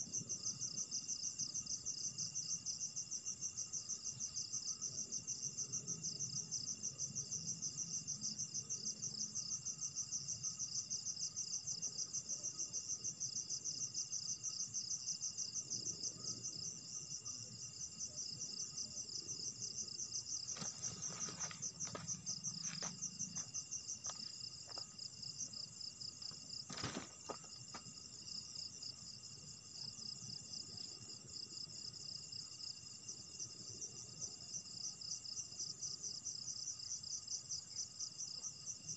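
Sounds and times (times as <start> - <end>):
crickets trilling: 0.0 - 38.9
high insect tones: 9.2 - 31.0.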